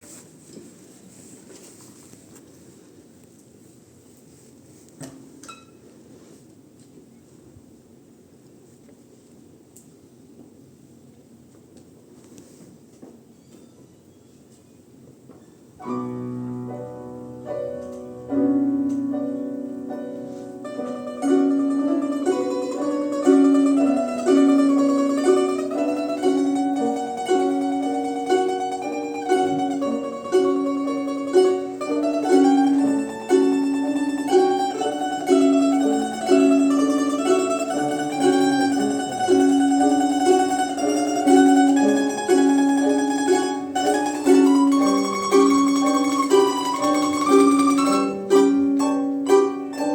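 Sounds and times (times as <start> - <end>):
string quartet playing melody: 18.9 - 49.9.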